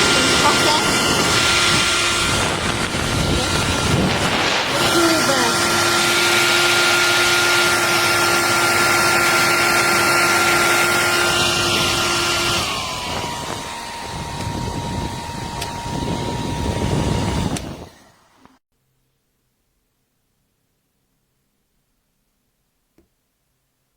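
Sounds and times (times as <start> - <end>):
hair dryer running: 0.0 - 18.6.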